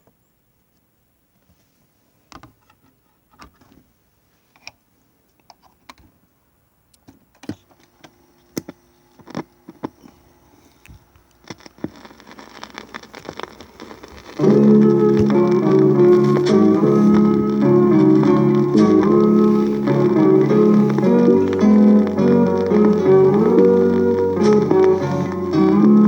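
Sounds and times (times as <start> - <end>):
vinyl record clicks and pops: 7.0 - 26.0
vinyl surface noise: 7.4 - 26.0.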